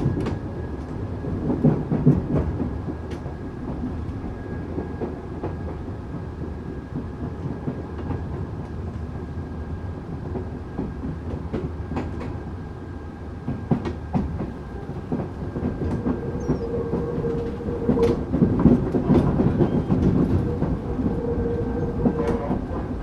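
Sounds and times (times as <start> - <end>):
steady train whine: 0.0 - 23.0
train wheels clacking over rail joints: 13.5 - 23.0.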